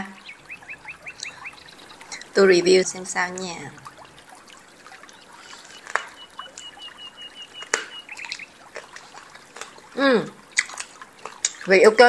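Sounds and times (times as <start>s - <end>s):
wet chewing and sucking: 0.2s - 2.4s, 3.7s - 12.0s
sharp mouth clicks: 10.5s - 11.7s.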